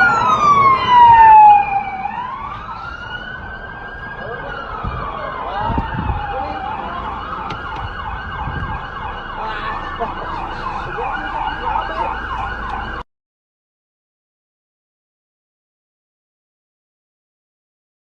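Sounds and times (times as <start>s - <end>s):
low traffic rumble: 0.0s - 13.0s
emergency vehicle siren: 0.0s - 13.1s.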